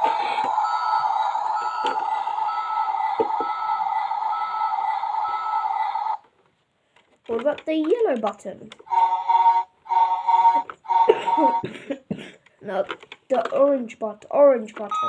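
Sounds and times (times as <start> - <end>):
tinny toy sound effect: 0.0 - 6.2.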